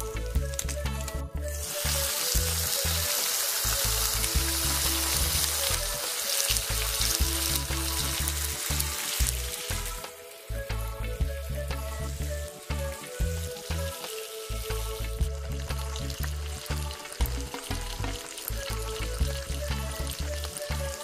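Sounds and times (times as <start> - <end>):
food sizzling in a frying pan: 1.5 - 21.0
music with pulsing bass beat: 6.7 - 13.9.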